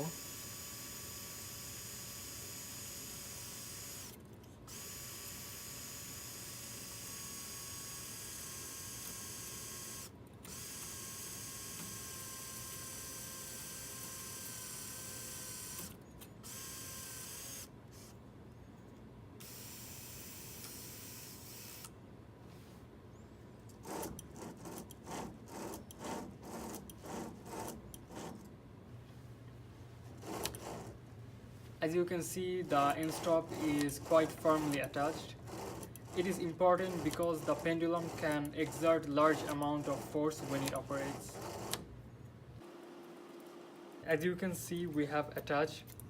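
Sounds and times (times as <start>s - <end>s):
rhythmic mechanical strokes: 32.6s - 41.8s.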